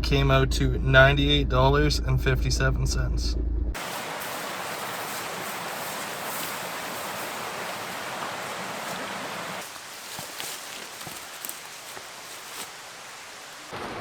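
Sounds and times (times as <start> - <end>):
running water rushing: 3.8 - 14.0.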